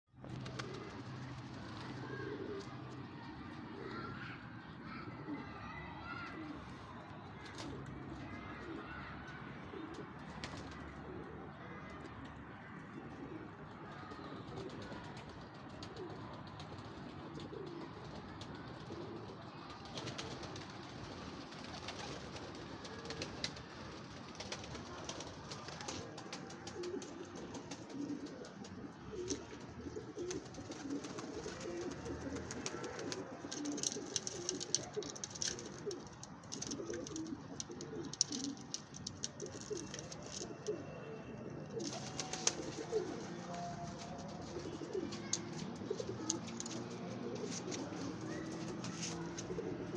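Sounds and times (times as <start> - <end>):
doves cooing: 0.2 - 49.9
sharp clicks and scratches: 32.6 - 40.7.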